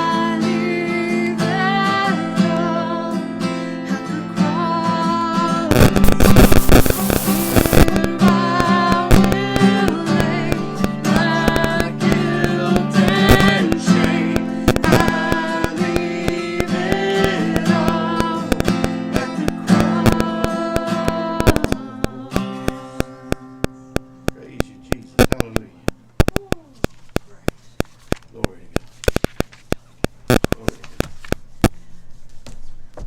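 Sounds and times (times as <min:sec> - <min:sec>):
person singing: 0:00.0 - 0:23.7
strummed acoustic guitar: 0:00.0 - 0:25.8.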